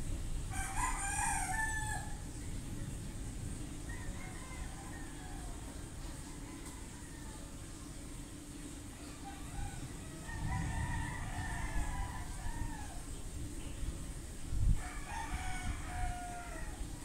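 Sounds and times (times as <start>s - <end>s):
rooster crowing: 0.5s - 2.3s, 3.8s - 7.7s, 9.0s - 13.2s, 14.8s - 17.0s.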